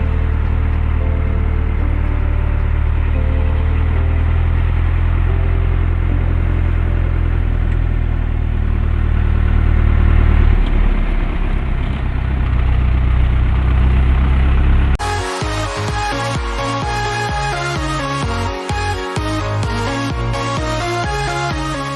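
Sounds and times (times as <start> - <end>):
electronic music: 0.0 - 7.4, 15.0 - 21.9.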